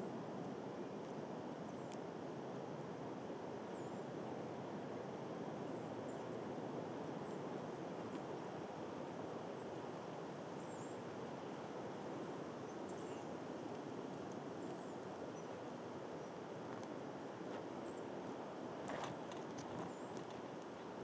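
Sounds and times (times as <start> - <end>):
faint high bird chirps: 10.5 - 11.1, 12.1 - 13.4.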